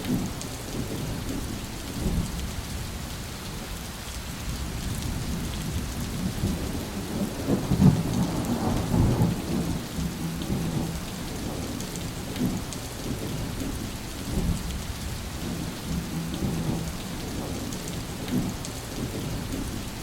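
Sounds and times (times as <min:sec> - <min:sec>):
heavy rain hissing: 0:00.0 - 0:20.0
thunder rumbling: 0:04.7 - 0:20.0.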